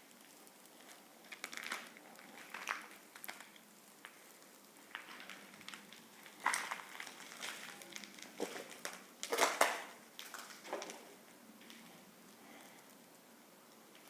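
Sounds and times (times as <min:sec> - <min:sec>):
footsteps crunching on debris: 0:04.9 - 0:11.8.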